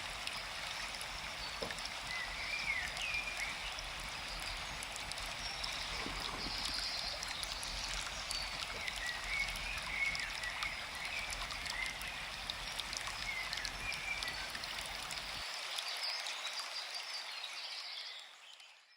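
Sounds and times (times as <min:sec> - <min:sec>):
running water rushing: 0:00.0 - 0:18.6
small birds chirping: 0:00.2 - 0:18.9.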